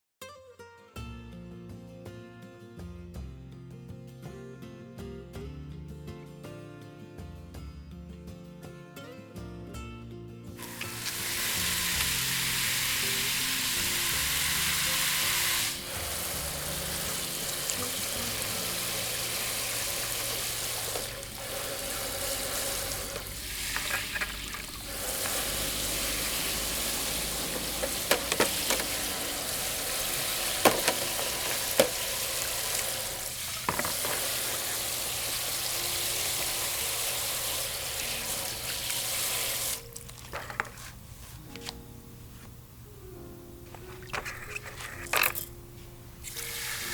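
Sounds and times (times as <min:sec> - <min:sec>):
food sizzling on a grill: 0:10.6 - 0:40.0, 0:46.2 - 0:46.9.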